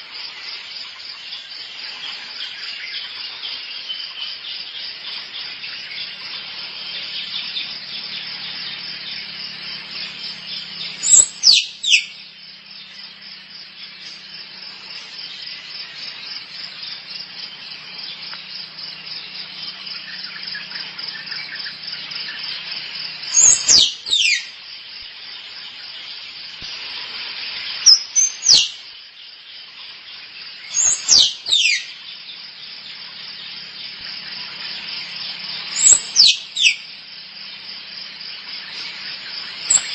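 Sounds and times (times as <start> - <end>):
insects buzzing: 0.0 - 39.9
squirrel squeaking calls: 11.0 - 12.1, 23.4 - 24.4, 35.8 - 36.8.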